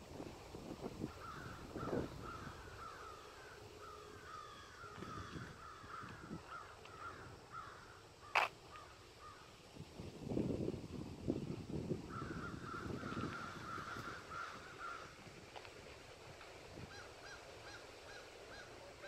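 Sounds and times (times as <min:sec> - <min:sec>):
birds calling: 0:01.1 - 0:09.5, 0:12.1 - 0:15.2, 0:16.9 - 0:19.0
sharp click: 0:08.4 - 0:08.6.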